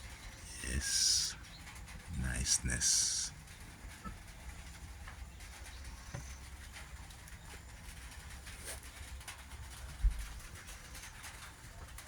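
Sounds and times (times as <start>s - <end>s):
steady low rumble: 0.0s - 8.5s.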